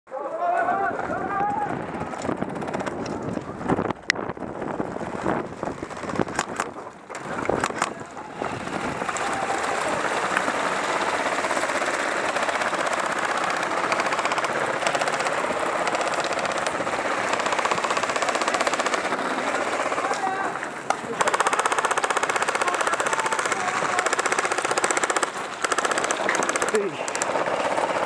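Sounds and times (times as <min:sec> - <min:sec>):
airsoft guns firing full-auto: 0:05.7 - 0:28.0
sharp clicks: 0:05.9 - 0:08.0, 0:11.4 - 0:19.2, 0:19.9 - 0:28.0.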